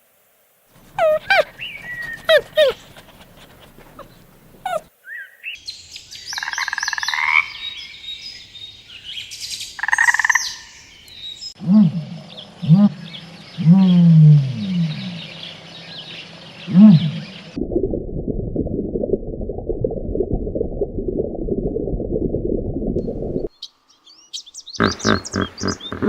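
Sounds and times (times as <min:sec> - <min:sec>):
pulsed croaking: 0:24.8 - 0:26.0.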